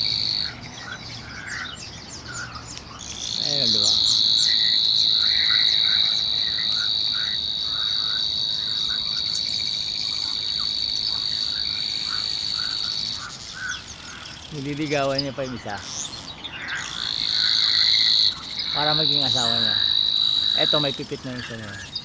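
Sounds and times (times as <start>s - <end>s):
high-pitched insect buzz: 0.0s - 0.6s, 3.2s - 13.4s, 16.8s - 21.0s
small birds chirping: 0.0s - 22.0s.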